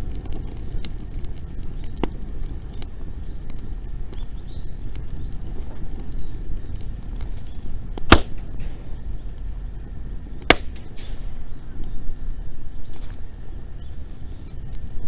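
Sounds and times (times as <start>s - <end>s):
bonfire crackling: 0.0s - 15.0s
bonfire sharp pops: 0.0s - 15.0s
low rumble: 0.0s - 15.0s.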